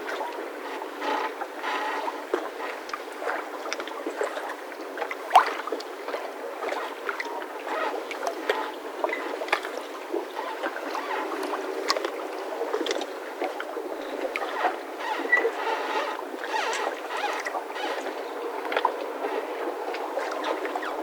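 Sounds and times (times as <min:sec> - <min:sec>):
mooring ropes squeaking and creaking: 0:10.3 - 0:11.6, 0:14.4 - 0:21.0.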